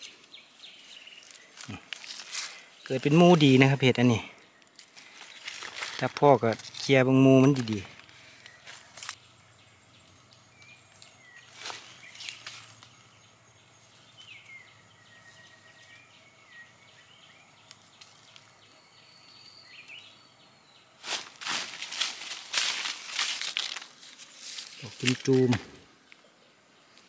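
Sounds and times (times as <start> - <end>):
rustling dry leaves: 0.0 - 9.2, 10.5 - 13.0, 21.0 - 25.9.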